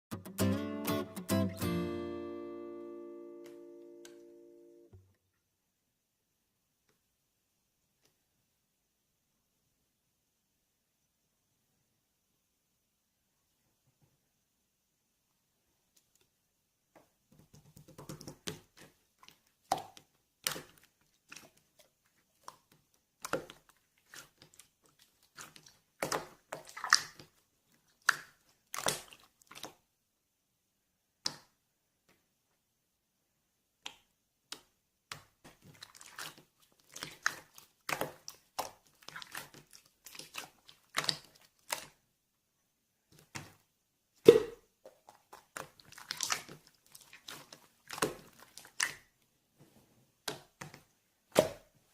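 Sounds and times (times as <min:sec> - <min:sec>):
slime squishing and popping: 0:33.8 - 0:42.0, 0:44.2 - 0:49.1.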